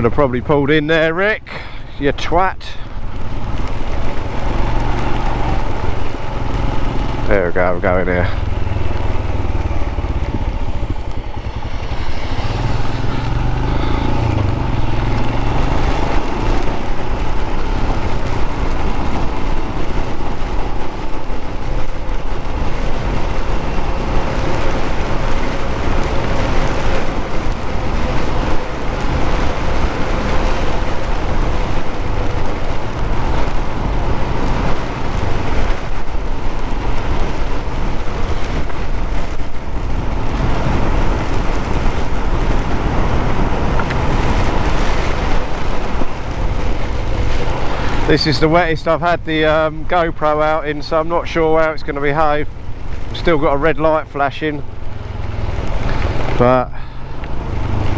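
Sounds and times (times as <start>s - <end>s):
wind rush on microphone: 0.0s - 57.9s
motorcycle engine running: 2.8s - 48.2s.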